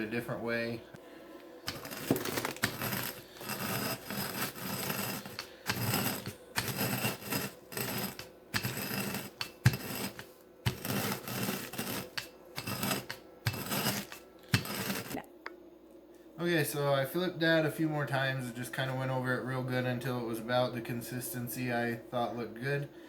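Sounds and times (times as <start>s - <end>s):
dried pepper crackling: 1.6s - 15.2s
plastic bag crinkling: 1.8s - 3.4s.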